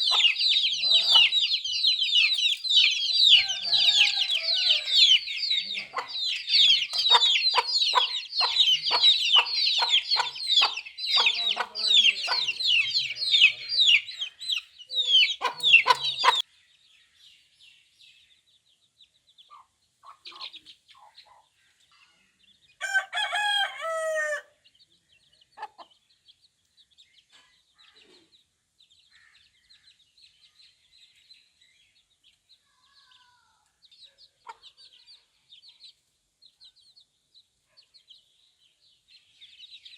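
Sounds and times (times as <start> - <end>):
chicks peeping: 0.0 - 39.9
low clucks: 15.4 - 16.4.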